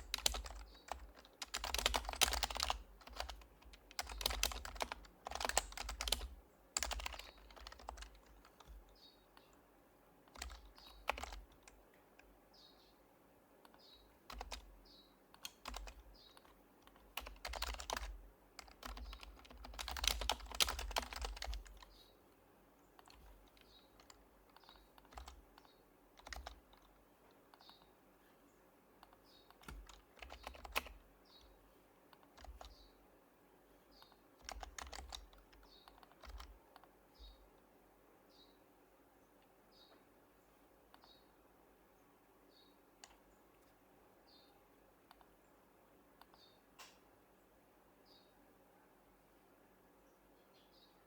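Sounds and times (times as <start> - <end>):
keyboard typing: 0.0 - 9.5, 10.3 - 11.8, 13.6 - 22.0, 23.0 - 27.9, 29.0 - 31.5, 32.1 - 32.9, 34.0 - 37.4
soft keyboard clicks: 0.0 - 9.6, 10.3 - 12.3, 13.6 - 14.7, 15.3 - 22.0, 23.0 - 27.9, 29.0 - 32.9, 34.0 - 37.4, 40.9 - 41.2, 43.0 - 43.8, 45.0 - 45.4, 46.2 - 47.0.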